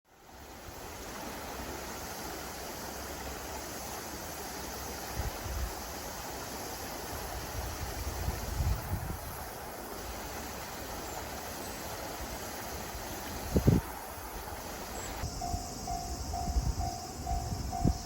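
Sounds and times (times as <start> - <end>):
rushing wind: 3.7 - 6.2, 6.9 - 18.0
wind buffeting microphone: 7.3 - 9.5, 13.3 - 18.0.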